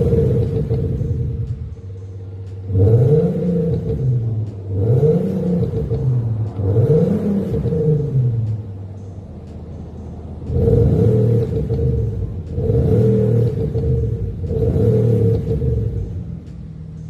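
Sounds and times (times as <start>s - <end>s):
car exhaust idling and revving: 0.0s - 17.0s.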